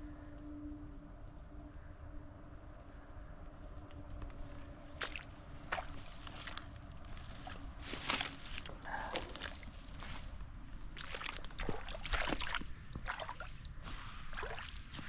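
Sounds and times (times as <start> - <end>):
water sloshing and splashing: 4.9 - 15.0.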